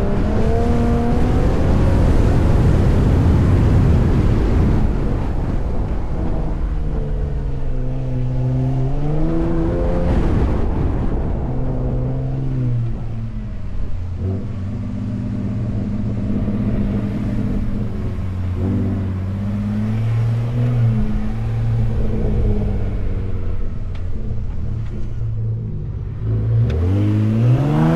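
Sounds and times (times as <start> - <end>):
low rumble: 0.0 - 27.9
truck engine revving: 13.8 - 27.9.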